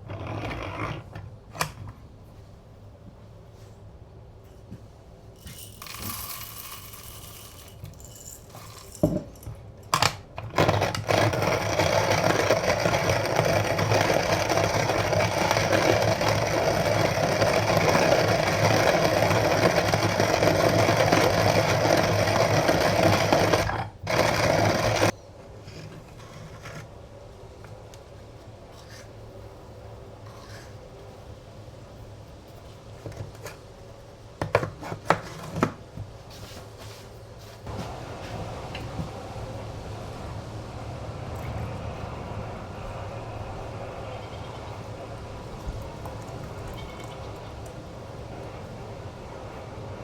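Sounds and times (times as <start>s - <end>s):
coffee grinder grinding: 0.0s - 1.2s, 5.4s - 25.2s.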